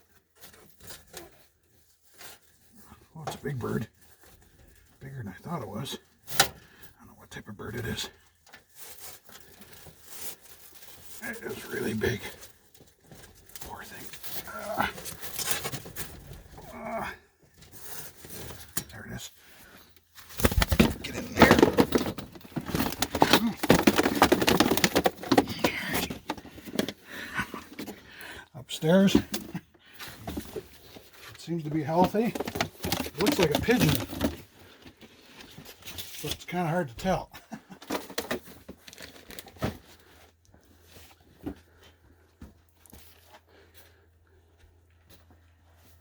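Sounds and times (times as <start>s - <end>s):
rustling and crinkling: 0.0s - 5.5s, 8.1s - 46.0s
knocks and scrapes in pipe: 20.3s - 27.0s, 31.9s - 34.5s.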